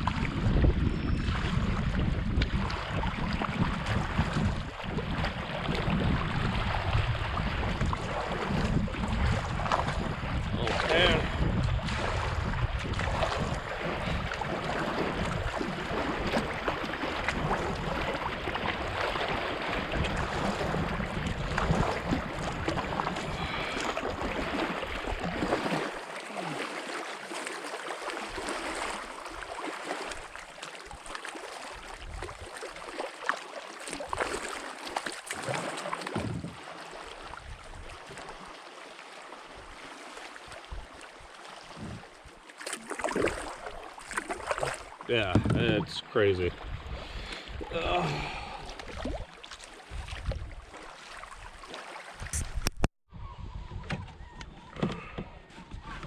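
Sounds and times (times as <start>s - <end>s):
wind buffeting microphone: 0.0s - 25.2s, 36.2s - 36.6s, 52.2s - 56.0s
water splashing against canoe: 0.0s - 52.9s.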